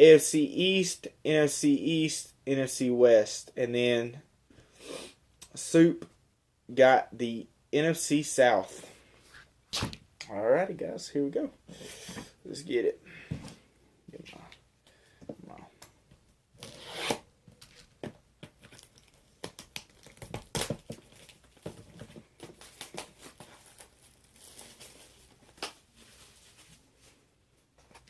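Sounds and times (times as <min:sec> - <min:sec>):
plastic wrapping crinkling: 0:17.6 - 0:27.2
plastic ripping: 0:18.6 - 0:26.7.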